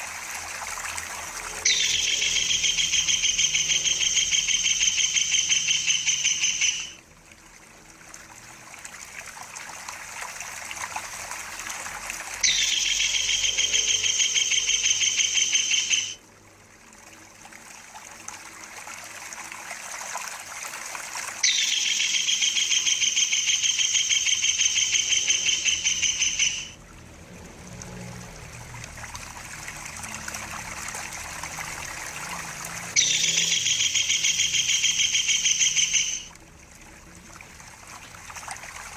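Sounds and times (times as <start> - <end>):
trickling water: 0.0 - 38.9
kingfisher trilling call: 1.5 - 7.0, 12.4 - 16.2, 21.4 - 26.8, 33.0 - 36.3.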